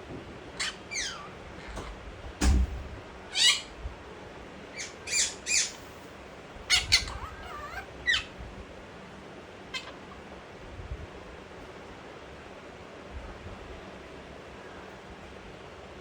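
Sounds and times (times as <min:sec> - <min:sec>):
parakeet squawking: 0:00.6 - 0:02.0, 0:03.3 - 0:03.8, 0:04.7 - 0:05.9, 0:06.6 - 0:08.4, 0:09.7 - 0:10.2.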